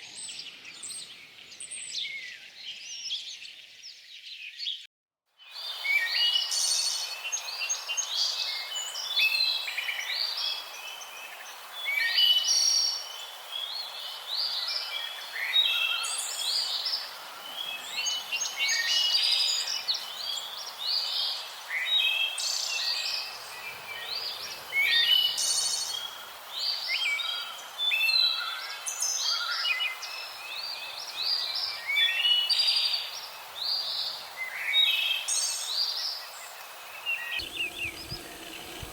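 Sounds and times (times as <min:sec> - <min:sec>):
small birds chirping: 0:21.8 - 0:27.7, 0:29.8 - 0:38.9.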